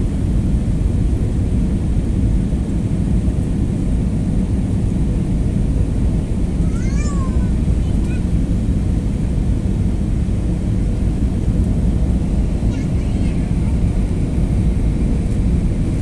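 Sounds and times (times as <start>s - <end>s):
airliner cabin noise: 5.8s - 16.0s.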